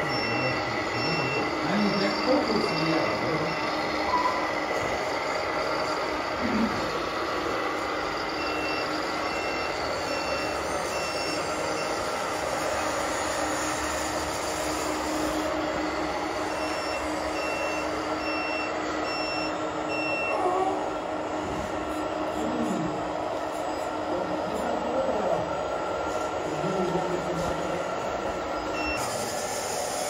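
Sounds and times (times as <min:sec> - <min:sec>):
reversing beeper: 0:00.0 - 0:14.3, 0:15.0 - 0:20.9, 0:28.6 - 0:29.8
steady running hum: 0:00.0 - 0:30.0.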